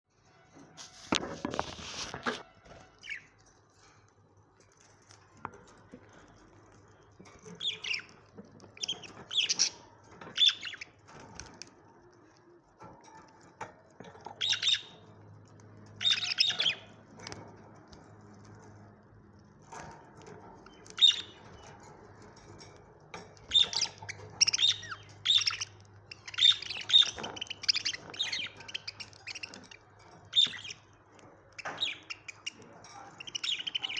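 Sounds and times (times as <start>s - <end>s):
budgerigars chirping: 8.8s - 11.0s, 14.4s - 15.0s, 16.0s - 16.9s, 20.8s - 21.5s, 23.4s - 30.9s, 31.6s - 33.9s.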